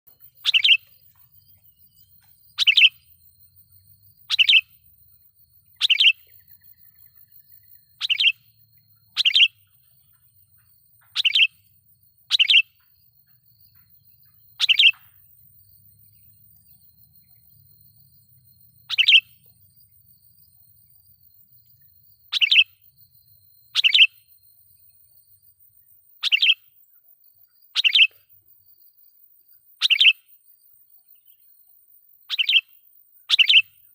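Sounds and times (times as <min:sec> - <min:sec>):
bird chirping calls: 0:00.1 - 0:04.9, 0:05.6 - 0:19.5, 0:22.2 - 0:24.3, 0:26.2 - 0:26.7, 0:27.7 - 0:28.2, 0:29.8 - 0:30.2, 0:32.3 - 0:33.8.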